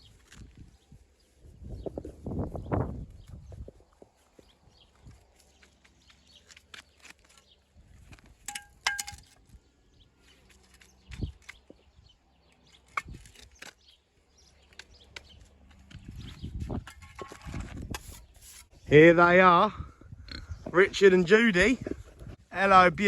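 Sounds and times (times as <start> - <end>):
ringing metallic clink: 8.5 - 9.2.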